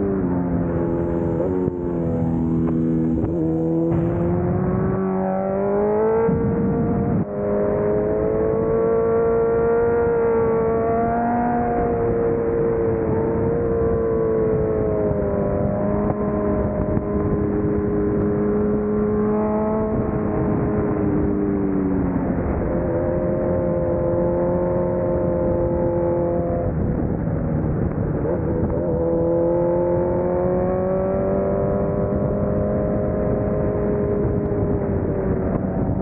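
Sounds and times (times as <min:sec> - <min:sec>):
road noise: 0:00.0 - 0:36.0
vehicle engine running: 0:00.3 - 0:08.7.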